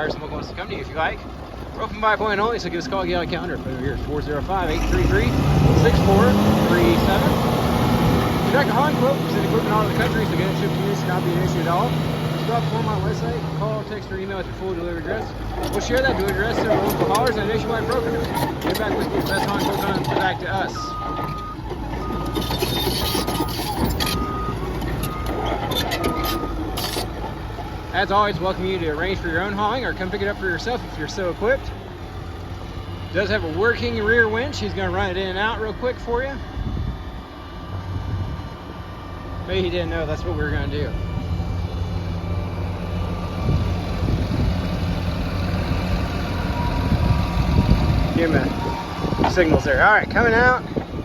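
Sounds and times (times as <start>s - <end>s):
diesel engine rumbling: 0.0s - 51.0s
sharp clanks: 15.4s - 28.0s
backup alarm beeping: 20.7s - 27.0s.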